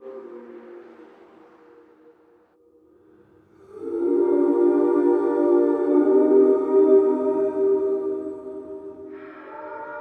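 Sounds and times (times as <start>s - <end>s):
ambient held chord: 3.6s - 10.0s.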